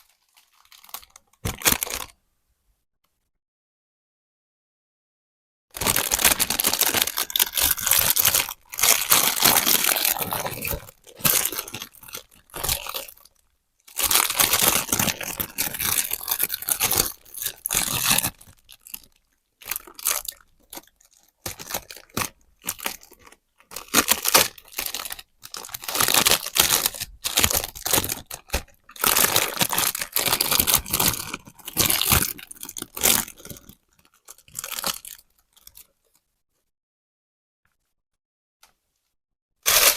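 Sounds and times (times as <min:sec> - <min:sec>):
packaging being torn and crinkled: 0:00.0 - 0:02.2, 0:05.8 - 0:13.3, 0:13.9 - 0:35.9, 0:39.6 - 0:39.9.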